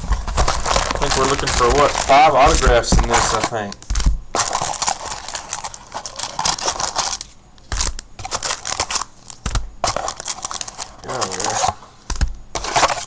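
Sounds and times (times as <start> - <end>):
dull thumps: 0.0 - 4.4
card packs rustling and crinkling: 0.0 - 13.0.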